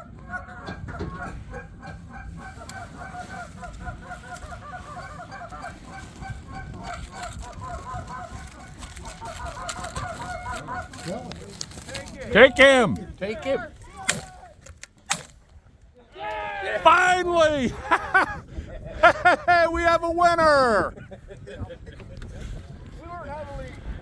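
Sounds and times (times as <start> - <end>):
geese honking: 0.0 - 11.1
low wind rumble: 0.0 - 12.3, 15.4 - 24.0.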